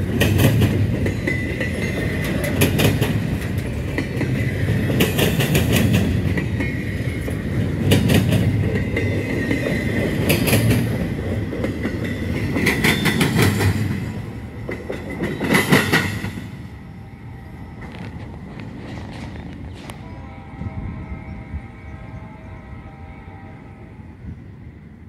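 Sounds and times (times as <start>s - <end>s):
wheels clacking over rail joints: 0.0s - 16.7s
train rumble: 0.0s - 25.0s.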